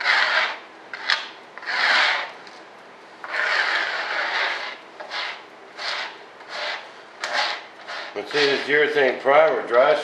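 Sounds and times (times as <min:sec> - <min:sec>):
primer rubbed over rough surface: 0:00.0 - 0:02.3, 0:03.2 - 0:08.9.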